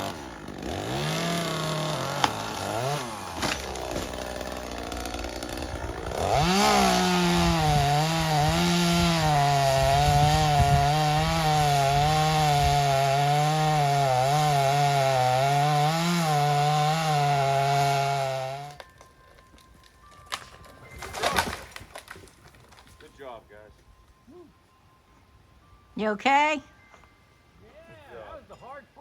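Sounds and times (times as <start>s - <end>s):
chainsaw revving and cutting wood: 0.0s - 18.8s.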